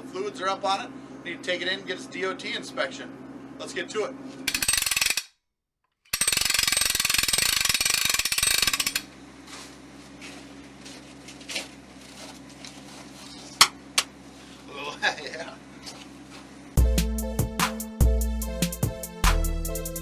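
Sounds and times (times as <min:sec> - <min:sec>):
fast mechanical rattle: 0:04.5 - 0:05.3, 0:06.1 - 0:09.1.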